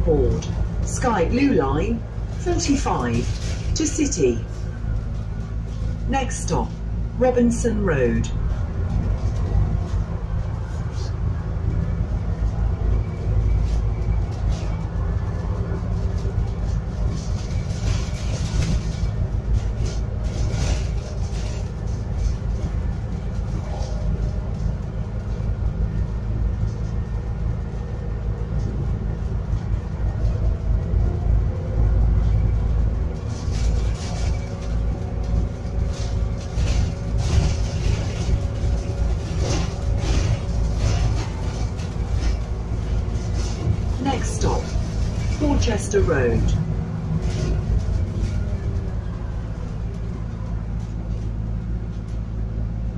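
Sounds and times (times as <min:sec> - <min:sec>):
bus engine drone: 0:00.0 - 0:52.9
road rumble: 0:00.0 - 0:52.9
steady tones: 0:34.8 - 0:48.6.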